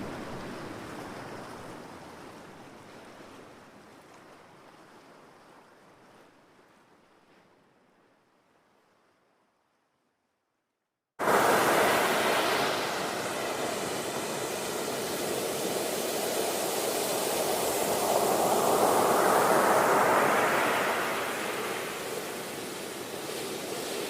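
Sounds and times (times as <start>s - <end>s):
ocean waves breaking: 11.2s - 24.0s.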